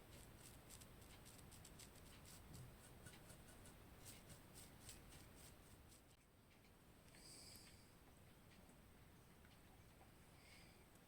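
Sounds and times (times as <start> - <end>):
small brush strokes: 0.0 - 6.7.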